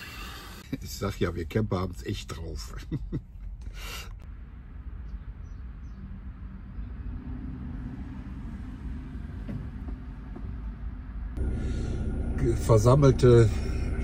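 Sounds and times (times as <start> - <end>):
road traffic rumble: 3.4 - 14.0.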